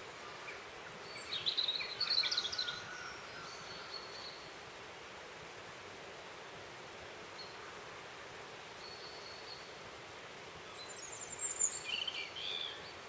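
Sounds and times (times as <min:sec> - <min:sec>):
outdoor hiss: 0:00.0 - 0:13.0
small bird calls: 0:00.2 - 0:04.5, 0:10.6 - 0:13.0.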